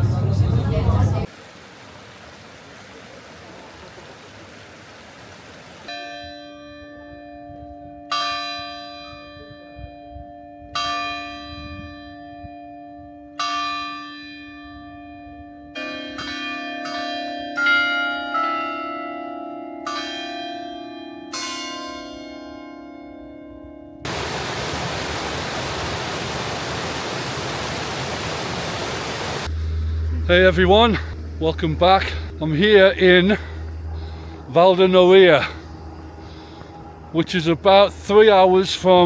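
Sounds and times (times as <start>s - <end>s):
bells ringing: 5.9s - 23.7s.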